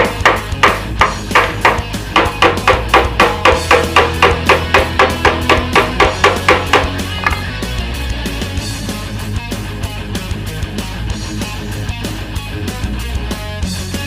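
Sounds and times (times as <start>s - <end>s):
hammer blows on metal tank: 0.0s - 7.0s
background music: 0.0s - 14.0s.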